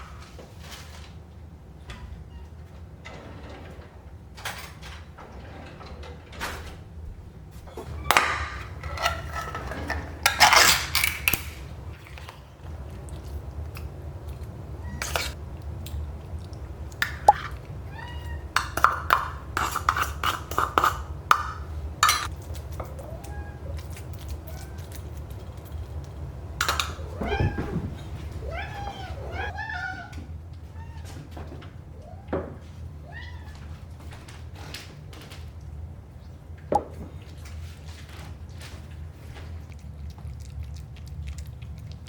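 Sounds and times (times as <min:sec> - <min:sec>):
dishes and utensils clinking: 0:07.7 - 0:12.3, 0:14.3 - 0:25.0, 0:26.6 - 0:29.5.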